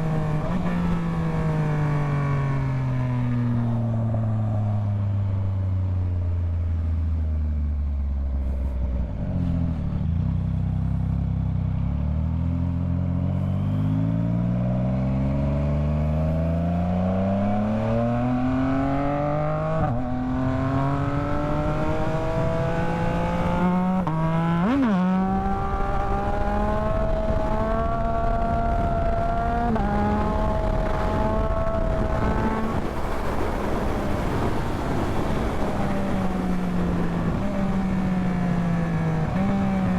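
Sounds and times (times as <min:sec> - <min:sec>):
motorcycle engine accelerating: 0:00.0 - 0:39.9
wind rush: 0:17.6 - 0:39.9.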